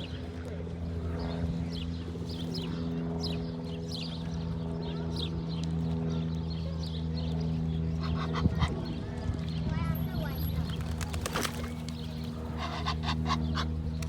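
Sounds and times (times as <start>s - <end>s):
birds chirping: 6.3s - 14.0s.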